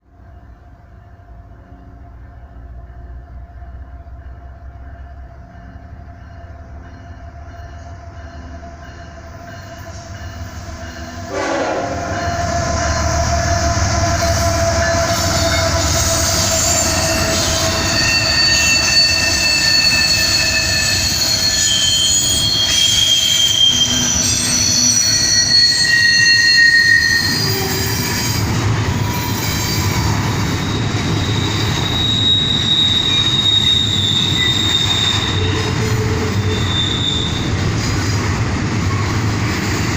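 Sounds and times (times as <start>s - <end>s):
diesel locomotives: 0.0s - 39.9s
train cars rumbling: 0.0s - 39.9s
train horn tone: 11.0s - 22.1s
wheels squealing: 12.1s - 37.7s.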